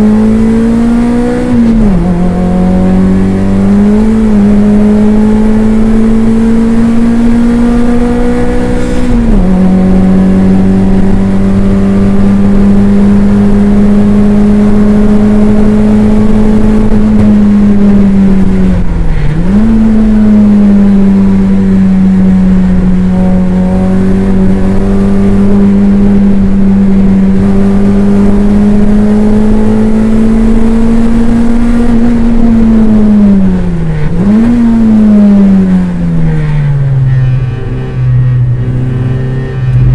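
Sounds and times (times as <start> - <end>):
race car engine under load: 0.0 - 39.9.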